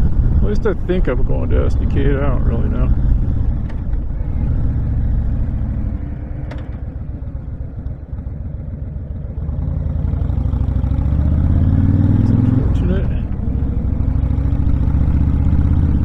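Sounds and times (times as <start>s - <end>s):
wind rushing over microphone: 0.0s - 8.8s
motorcycle engine running: 0.0s - 16.0s.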